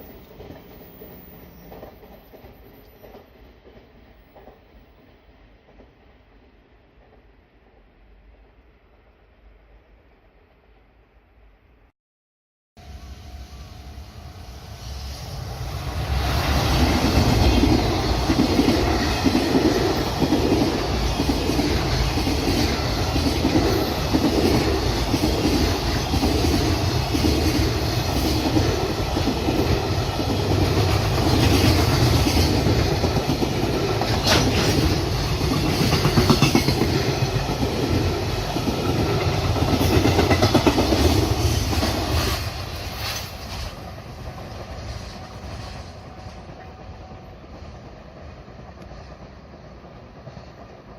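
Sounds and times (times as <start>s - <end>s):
freight train wheels clacking: 16.6s - 50.9s.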